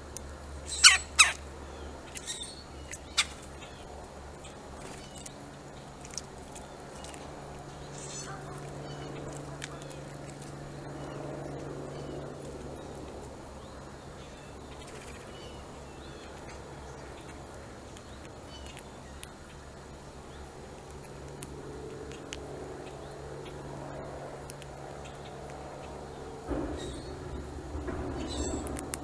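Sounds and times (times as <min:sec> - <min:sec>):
steady low hum: 0:00.0 - 0:29.0
bird chirps and calls: 0:00.7 - 0:03.9, 0:07.0 - 0:10.1.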